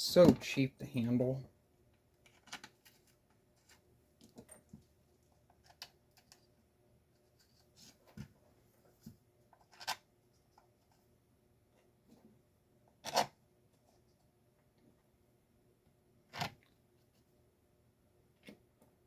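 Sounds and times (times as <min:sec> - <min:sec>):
plastic parts clicking and tapping: 0:02.2 - 0:03.0.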